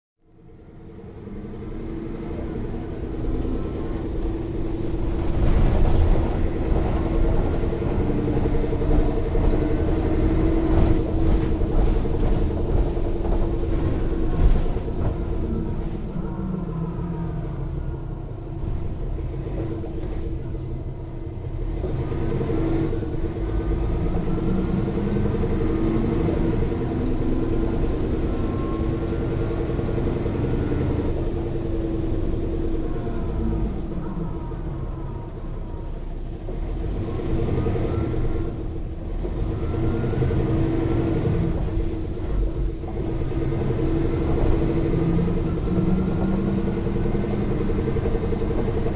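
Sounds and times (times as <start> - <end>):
bus diesel engine: 0.2 - 48.9
bus body rattling: 2.4 - 16.4, 40.9 - 48.9.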